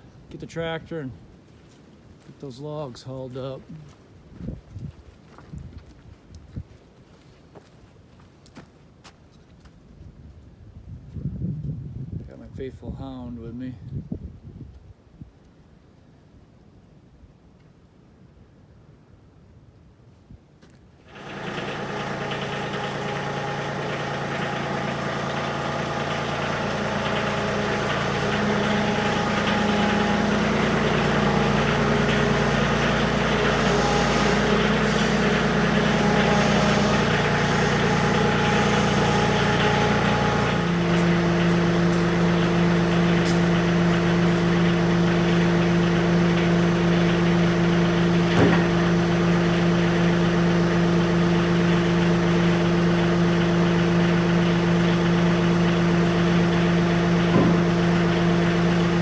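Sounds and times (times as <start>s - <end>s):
tractor engine running: 21.1s - 59.0s.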